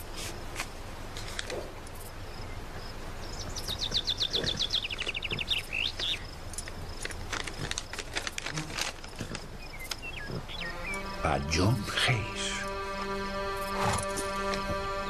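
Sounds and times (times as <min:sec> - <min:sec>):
faint high insect-like tone: 0:00.0 - 0:11.1
paper rustling and clicking: 0:00.6 - 0:01.6, 0:06.0 - 0:10.0
bird singing descending trill: 0:10.2 - 0:11.3.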